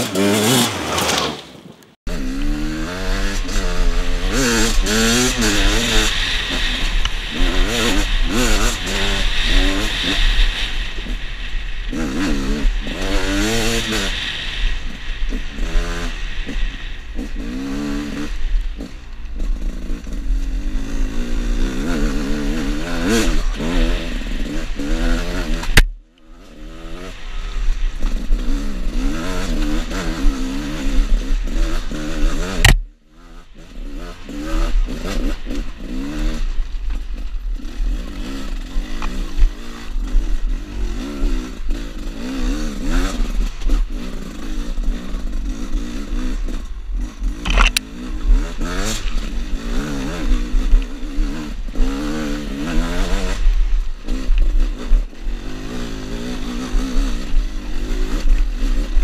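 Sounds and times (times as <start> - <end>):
motorcycle engine revving: 0.0 - 1.5, 2.1 - 59.0
sharp click: 32.6 - 32.9, 47.4 - 47.9.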